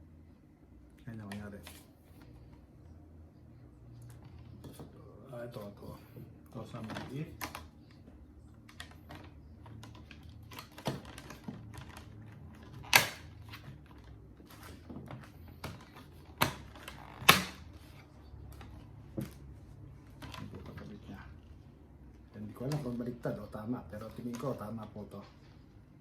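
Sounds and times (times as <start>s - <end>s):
plastic parts clicking and knocking: 8.7s - 17.6s.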